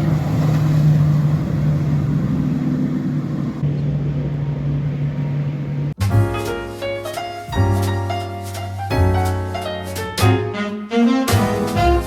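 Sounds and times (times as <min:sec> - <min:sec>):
wind and water noise: 0:00.0 - 0:03.7
motorboat engine droning: 0:00.0 - 0:06.0
piano music: 0:06.0 - 0:12.0.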